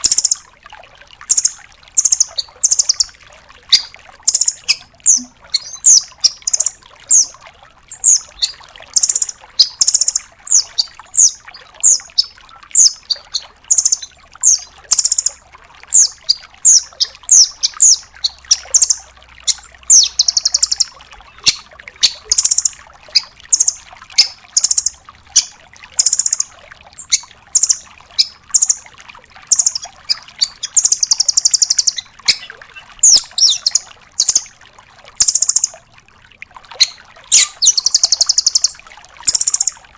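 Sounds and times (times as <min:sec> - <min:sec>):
bird trills: 0:00.0 - 0:00.4, 0:01.3 - 0:28.9, 0:29.5 - 0:34.5, 0:35.2 - 0:35.8, 0:36.8 - 0:39.8
bird sharp high calls: 0:03.7 - 0:28.8, 0:29.5 - 0:34.5, 0:35.2 - 0:35.7, 0:36.8 - 0:39.8.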